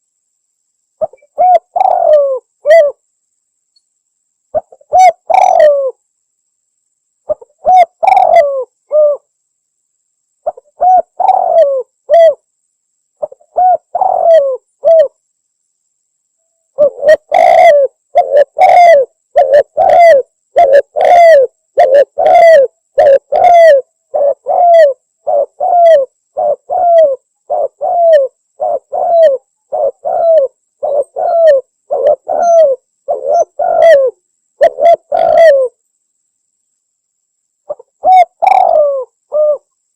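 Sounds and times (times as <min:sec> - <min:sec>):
dove cooing: 0:01.0 - 0:03.0, 0:04.5 - 0:06.0, 0:07.3 - 0:09.3, 0:10.4 - 0:12.4, 0:13.2 - 0:15.2, 0:16.8 - 0:35.8, 0:37.7 - 0:39.7.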